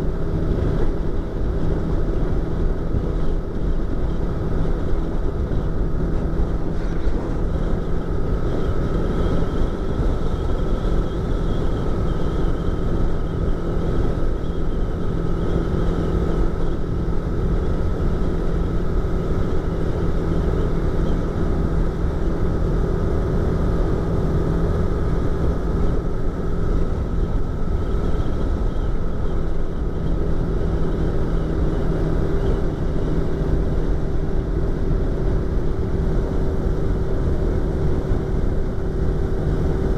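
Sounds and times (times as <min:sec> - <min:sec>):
motorcycle engine cruising: 0:00.0 - 0:39.9
wind rush in helmet: 0:00.0 - 0:39.9.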